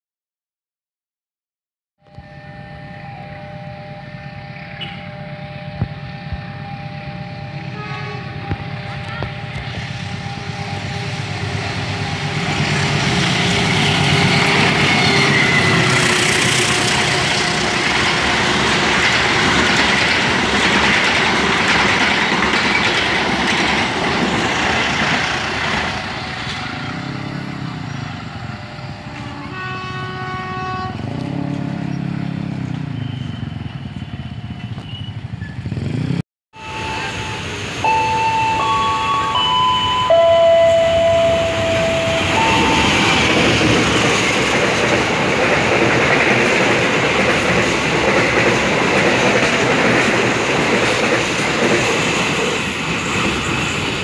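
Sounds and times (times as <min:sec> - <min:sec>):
train horn: 0:02.0 - 0:19.0, 0:28.4 - 0:32.1, 0:36.6 - 0:43.8
train wheels rumbling on rails: 0:03.4 - 0:54.0.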